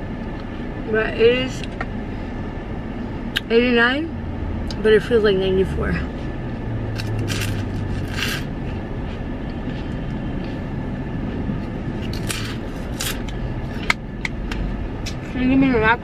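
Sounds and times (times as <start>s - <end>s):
car engine idling: 0.0s - 16.0s
person eating ice cream: 7.0s - 14.3s.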